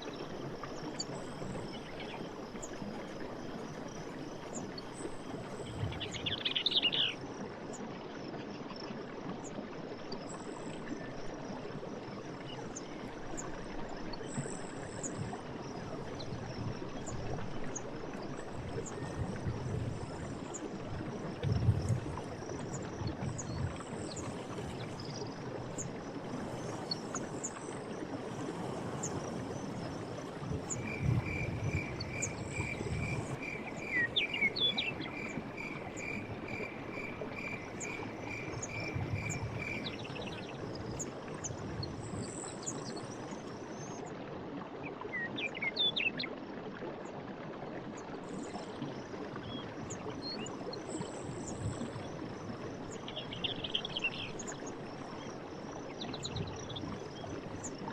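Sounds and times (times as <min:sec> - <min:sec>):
faint insect ticking: 0:18.4 - 0:41.1.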